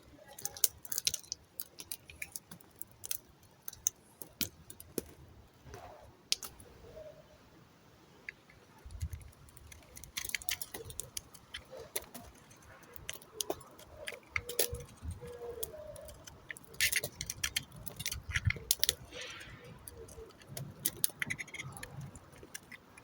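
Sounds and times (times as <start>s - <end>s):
soap cutting crackling clicks: 8.9s - 23.0s.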